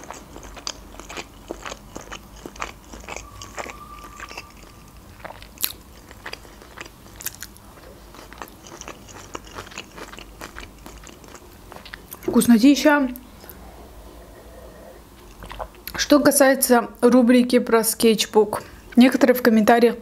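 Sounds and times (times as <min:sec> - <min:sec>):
chewing with mouth clicks: 0:00.0 - 0:12.3, 0:15.2 - 0:16.0.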